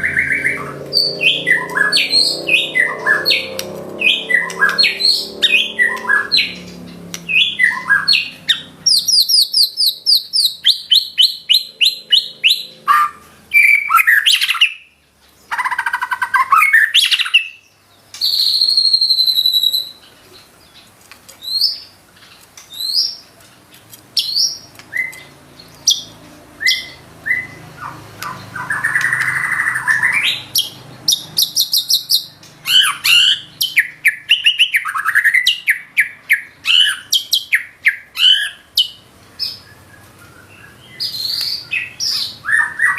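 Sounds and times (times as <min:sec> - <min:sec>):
buzzy bird phrase: 0:00.0 - 0:09.4
bird singing varied song: 0:00.0 - 0:42.9.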